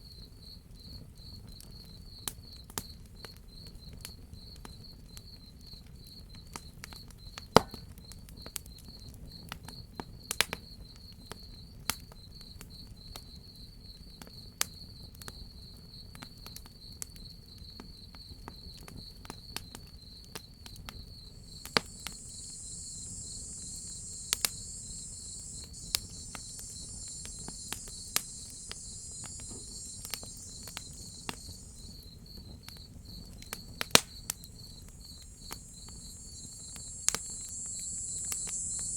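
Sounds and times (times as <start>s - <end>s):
crickets chirping: 20.0s - 38.9s
wood fire crackling: 21.3s - 32.1s, 33.4s - 38.9s
hissing insect buzz: 21.3s - 32.2s, 34.4s - 38.9s.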